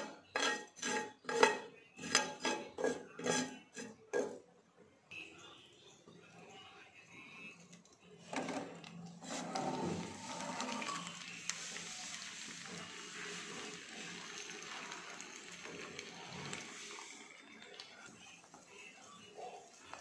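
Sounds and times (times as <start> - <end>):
food clattering into a pan: 0.0 - 4.4
food sizzling in oil: 9.7 - 20.0.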